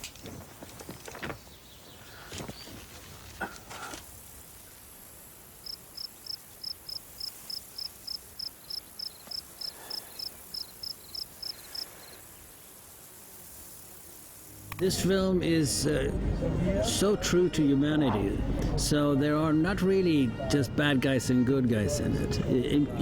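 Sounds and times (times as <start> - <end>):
faint steady hiss: 0.0 - 15.3
cricket chirping: 4.1 - 14.5.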